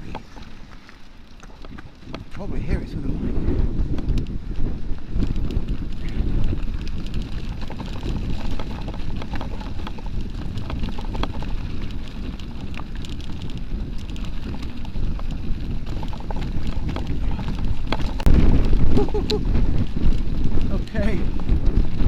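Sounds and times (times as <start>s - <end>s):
bike rattling over rocky trail: 0.0s - 22.0s
gusty wind buffeting microphone: 0.0s - 22.0s.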